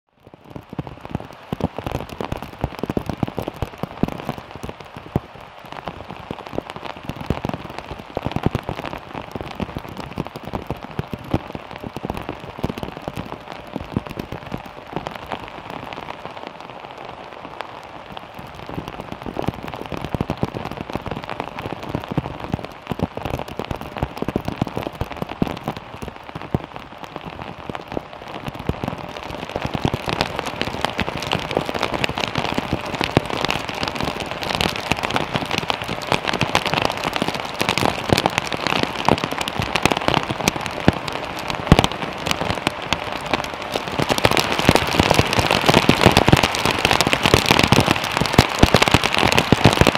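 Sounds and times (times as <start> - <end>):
heavy rain: 0.1 - 49.9.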